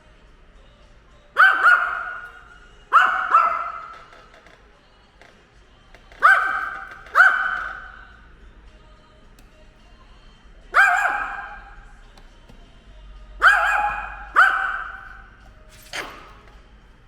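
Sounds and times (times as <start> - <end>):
dog barking with echo: 1.4 - 4.2, 6.1 - 8.1, 10.7 - 11.9, 13.4 - 15.4.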